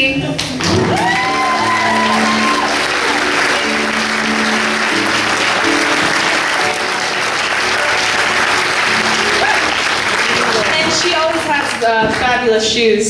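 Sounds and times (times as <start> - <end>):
soft instrumental music: 0.6 - 10.6
audience applauding: 0.6 - 12.4.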